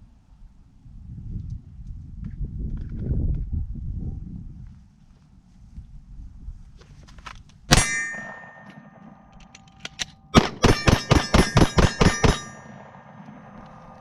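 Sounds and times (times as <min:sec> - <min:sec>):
pistol shots: 0:07.7 - 0:09.4, 0:10.3 - 0:14.0
steel targets ringing: 0:07.7 - 0:14.0.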